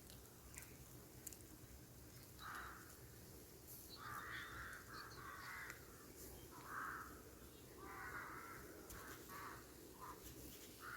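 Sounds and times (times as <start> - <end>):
small birds chirping: 0.0 - 10.9
crows cawing: 2.4 - 3.0, 3.9 - 10.9.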